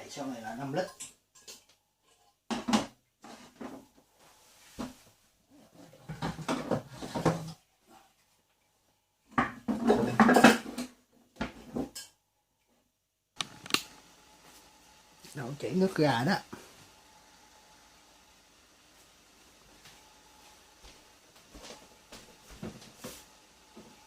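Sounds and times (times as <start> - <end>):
pots and lid clattering: 6.0 - 7.6, 9.4 - 12.2.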